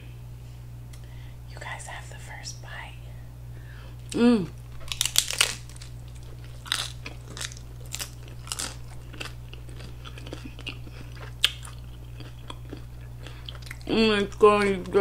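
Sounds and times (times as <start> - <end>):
chewing crunchy taco: 4.0 - 15.0.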